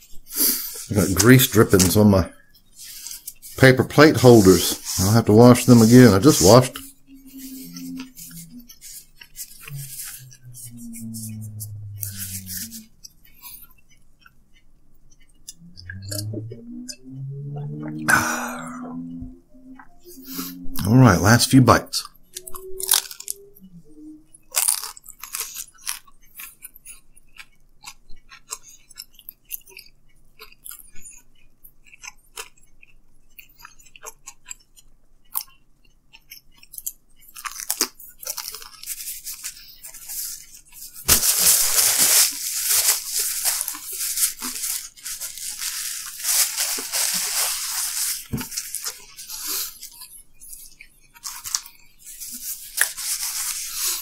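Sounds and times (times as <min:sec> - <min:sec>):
paper napkin rustling: 0:02.8 - 0:11.4, 0:38.8 - 0:49.8, 0:51.2 - 0:54.0
chewing crunches: 0:04.6 - 0:17.0, 0:21.9 - 0:23.7, 0:24.3 - 0:54.0
wet mouth clicks: 0:06.7 - 0:20.9, 0:22.0 - 0:41.5.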